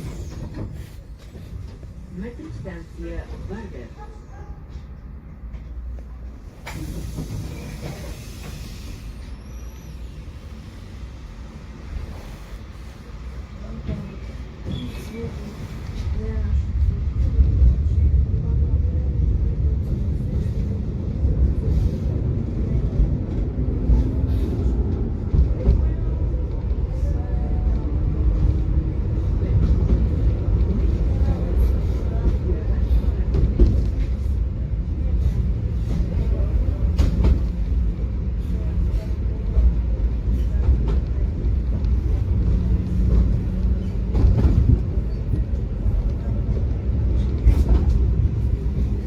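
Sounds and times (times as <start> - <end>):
tram rumbling on track: 0.0 - 49.0.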